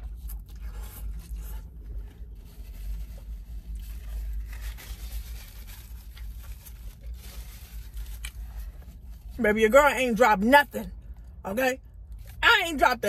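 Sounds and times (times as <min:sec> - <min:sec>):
burger being bitten and chewed: 0:00.0 - 0:09.2
wrapper rustling: 0:00.6 - 0:09.4.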